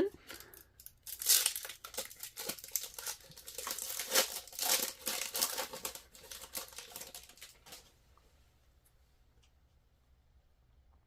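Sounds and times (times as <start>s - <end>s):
card pack wrapper tearing and crinkling: 0.3s - 7.8s.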